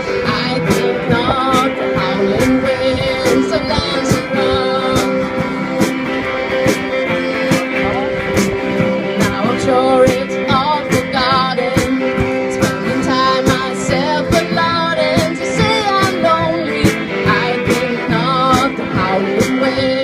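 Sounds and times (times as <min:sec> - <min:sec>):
wavering lead melody: 0:00.0 - 0:19.3
live rock band playing: 0:00.0 - 0:20.0
drum beat: 0:00.3 - 0:19.7.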